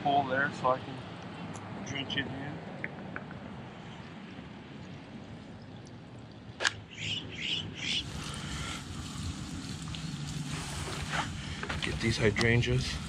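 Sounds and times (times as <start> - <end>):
faint outdoor background noise: 0.0 - 13.0
sharp click: 6.6 - 6.8
bird chirping: 6.8 - 8.5.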